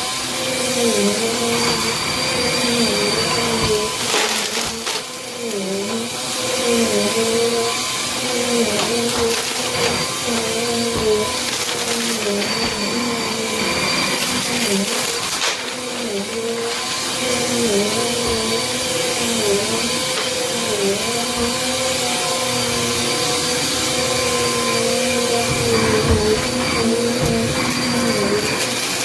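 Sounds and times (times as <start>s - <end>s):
vacuum cleaner running: 0.0s - 29.0s.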